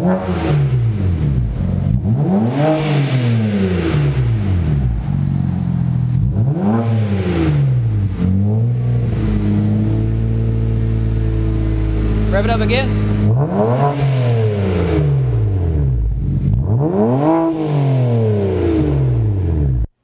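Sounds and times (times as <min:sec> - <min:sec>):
car engine revving: 0:00.0 - 0:19.9.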